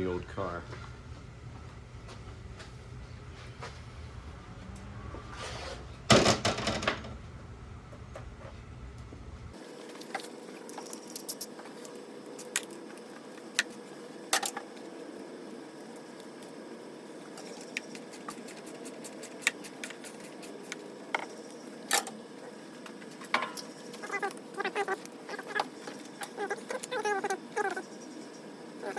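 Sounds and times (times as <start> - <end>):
steady background hum: 0.0 - 28.9.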